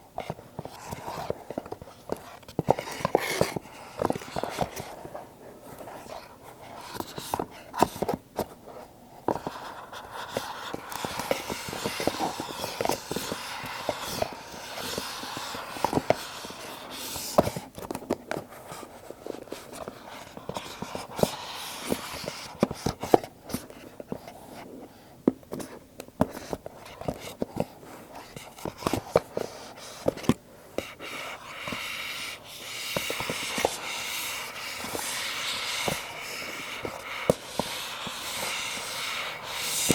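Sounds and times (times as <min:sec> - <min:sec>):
taps and clicks on cardboard boxes: 0:28.3 - 0:39.9.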